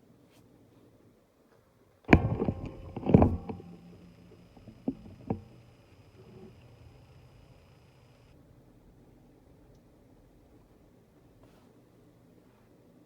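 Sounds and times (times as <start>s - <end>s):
ceiling fan faint hum: 0.0s - 13.0s
loud knocks: 2.1s - 7.5s.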